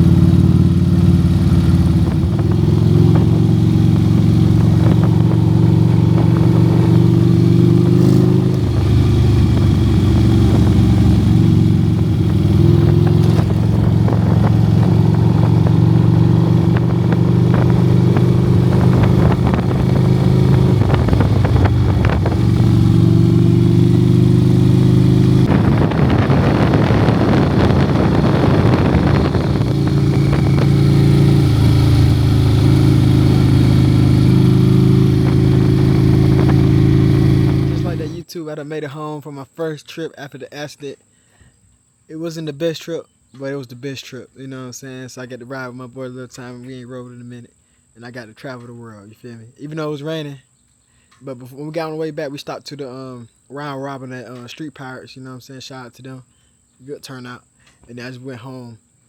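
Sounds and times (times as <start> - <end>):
motorcycle engine cruising: 0.0 - 38.3
rushing noise: 3.2 - 16.1, 25.4 - 33.0.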